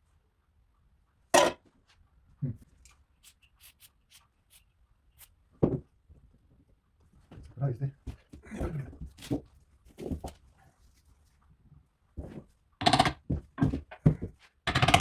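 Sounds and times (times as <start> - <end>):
tools knocking on metal: 12.8 - 13.2, 14.7 - 15.0.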